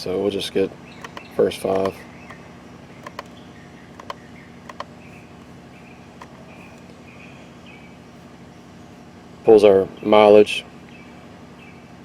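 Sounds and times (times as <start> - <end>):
steady low hum: 0.0 - 12.0
computer mouse clicking: 1.0 - 2.4, 3.0 - 3.3, 3.9 - 4.9.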